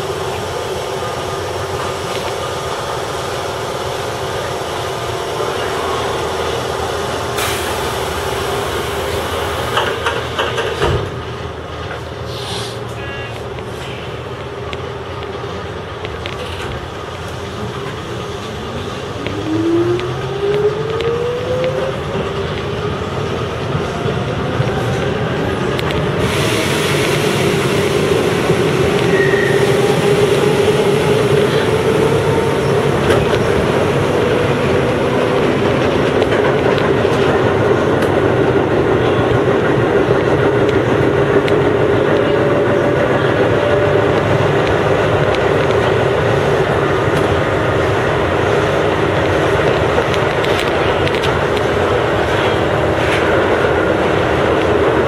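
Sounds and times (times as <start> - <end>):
wheels rumbling and clattering on rails: 0.0 - 55.0
loud rushing hiss: 26.1 - 32.3.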